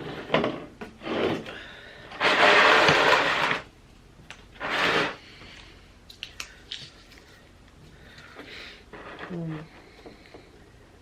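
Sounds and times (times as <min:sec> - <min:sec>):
items rubbing on table: 0:04.6 - 0:05.2.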